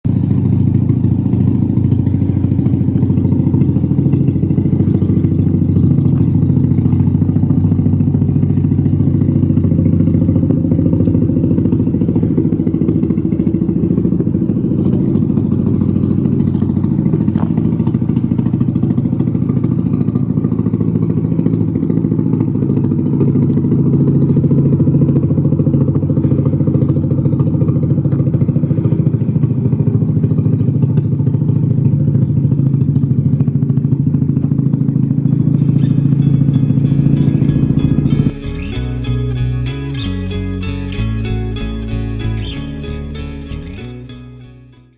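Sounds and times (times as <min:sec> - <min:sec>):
loud rotary engine running: 0:00.1 - 0:44.2.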